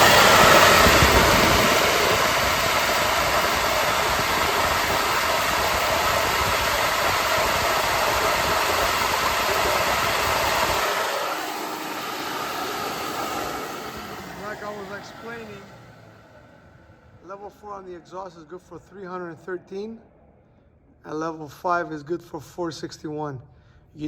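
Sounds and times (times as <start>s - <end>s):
loud rush of air: 0.0s - 18.1s.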